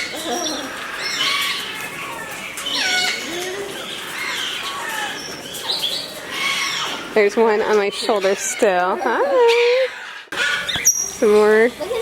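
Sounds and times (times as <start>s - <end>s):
flock of parrots squawking: 0.0s - 12.0s.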